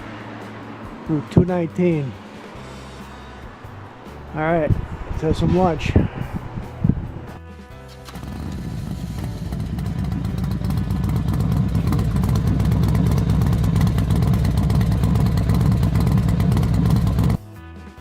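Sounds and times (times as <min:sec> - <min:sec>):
motorcycle engine running: 0:08.0 - 0:17.4.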